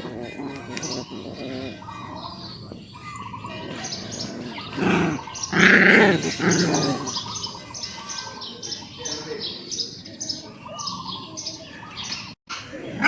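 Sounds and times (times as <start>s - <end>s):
dog whining: 0.0s - 7.5s
dog yelping: 0.0s - 8.0s.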